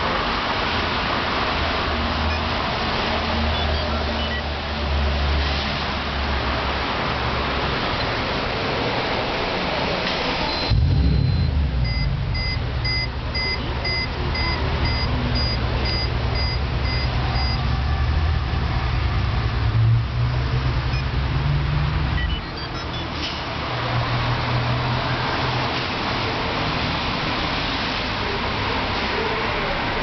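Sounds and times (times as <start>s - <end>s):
electronic warning chime beeping: 3.5s - 4.4s, 10.4s - 17.6s, 22.2s - 23.1s
car engine starting and idling: 10.0s - 23.9s.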